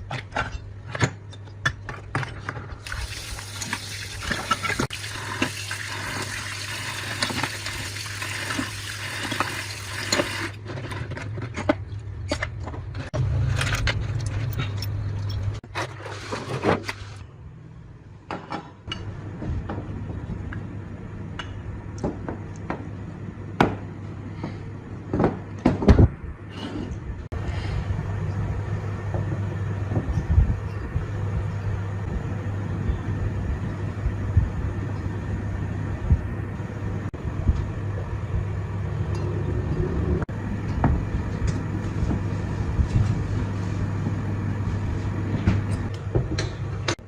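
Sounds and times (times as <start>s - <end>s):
water running: 2.8s - 10.6s
steady low hum: 19.0s - 47.0s.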